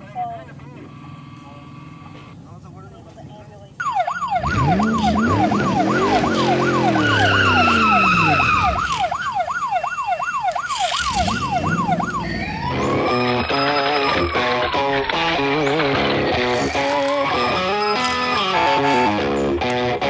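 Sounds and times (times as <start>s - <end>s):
low siren tone: 3.8s - 14.8s
siren yelping: 3.8s - 15.7s, 16.6s - 19.2s
guitar music: 4.5s - 8.6s, 11.7s - 20.0s.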